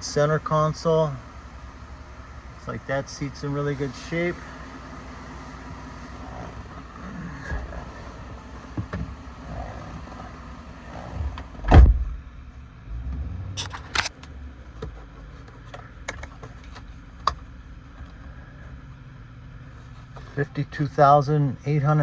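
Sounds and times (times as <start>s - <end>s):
short sharp clicks: 13.6s - 14.2s.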